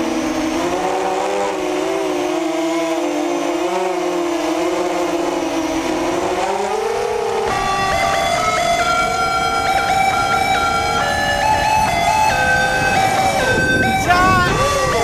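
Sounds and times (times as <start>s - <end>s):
quadcopter motors whining: 0.0s - 15.0s
music: 7.5s - 15.0s.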